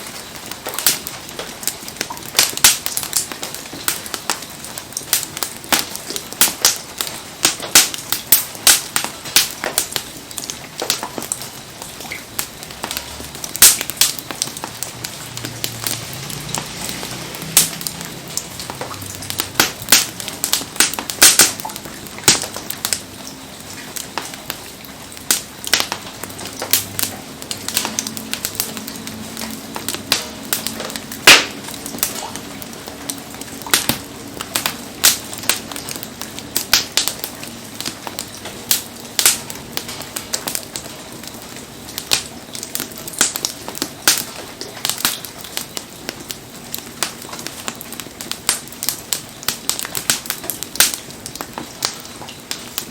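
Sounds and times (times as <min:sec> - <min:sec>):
campfire crackling and popping: 0:00.0 - 0:52.9
steady low hiss: 0:00.0 - 0:52.9.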